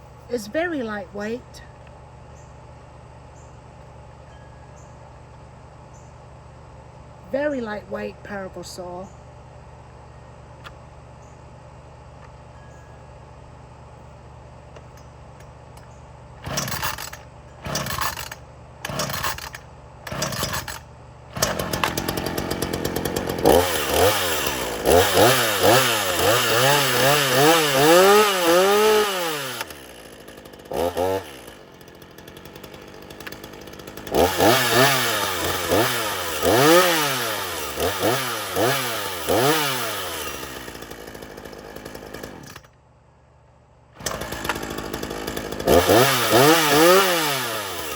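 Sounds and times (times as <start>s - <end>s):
chainsaw pull-starting: 14.7s - 42.8s, 44.0s - 47.9s
chainsaw revving and idling: 16.4s - 42.8s, 44.0s - 47.9s.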